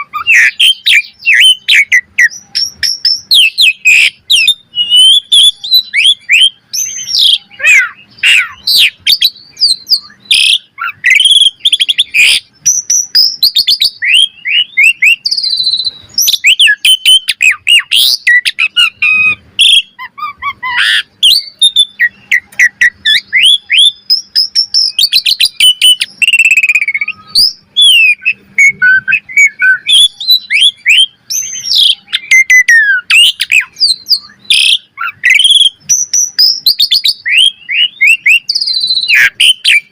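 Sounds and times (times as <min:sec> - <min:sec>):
bird song with whistles and clicks: 0:00.0 - 0:39.9.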